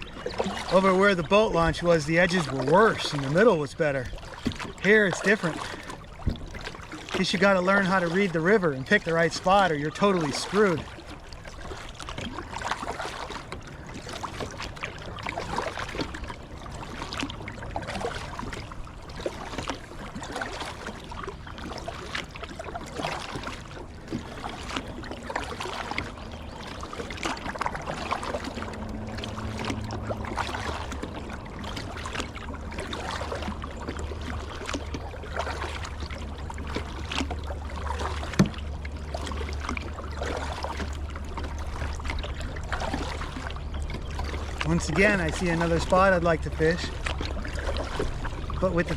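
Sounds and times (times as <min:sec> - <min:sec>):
paddle strokes: 0:00.0 - 0:48.9
river water splashing and gurgling: 0:00.0 - 0:48.9
water slapping hull: 0:00.0 - 0:48.9
low steady rumble: 0:25.2 - 0:48.9.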